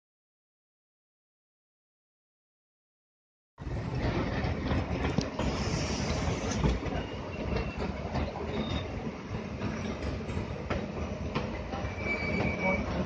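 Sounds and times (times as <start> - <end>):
wheels clicking over rail joints: 3.6 - 11.6
train coaches rumbling: 3.6 - 13.0
faint wheel squeals: 5.9 - 9.0, 11.8 - 13.0.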